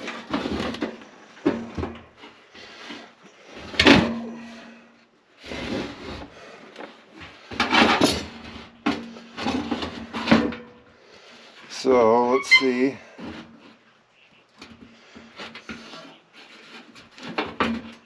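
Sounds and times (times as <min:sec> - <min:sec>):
metal parts clunking and scraping: 0:05.6 - 0:10.8.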